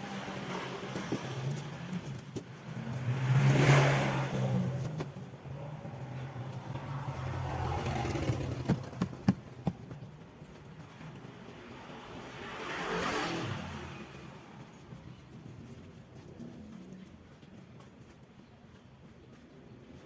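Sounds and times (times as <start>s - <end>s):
motor engine: 6.5s - 9.7s.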